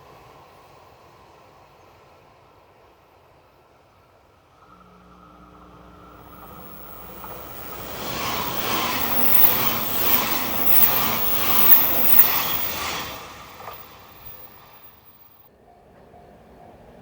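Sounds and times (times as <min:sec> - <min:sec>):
train passing on rails: 0:00.0 - 0:15.4.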